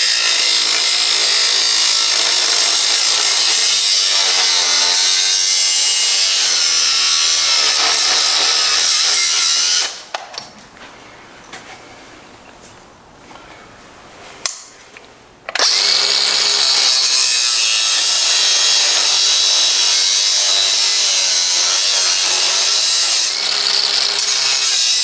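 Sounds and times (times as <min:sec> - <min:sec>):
power tool cutting metal: 0:00.0 - 0:10.1, 0:15.6 - 0:25.0.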